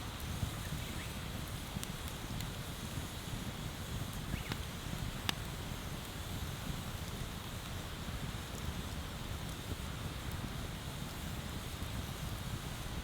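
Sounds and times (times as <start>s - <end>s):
bonfire crackling: 0.0s - 13.0s
sharp pops of fire: 0.2s - 7.8s.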